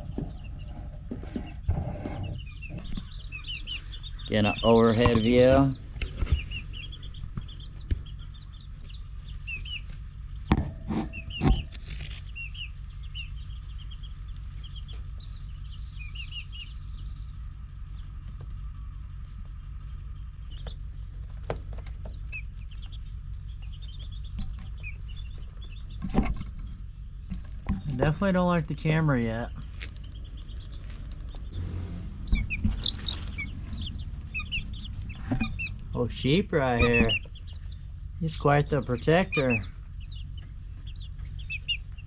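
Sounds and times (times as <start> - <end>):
chicks peeping: 0.0 - 42.0
steady low hum: 0.0 - 42.0
sharp knocks: 10.5 - 11.8.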